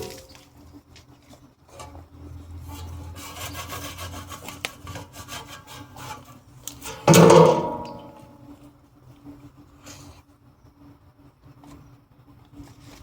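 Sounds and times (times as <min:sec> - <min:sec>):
scraping on metal: 0:01.7 - 0:08.4
loud ringing metal clang: 0:07.0 - 0:08.4.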